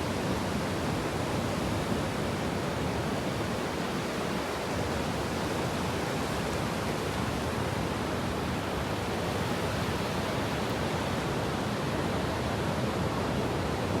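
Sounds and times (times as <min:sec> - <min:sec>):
ocean surf on sandy beach: 0:00.0 - 0:14.0.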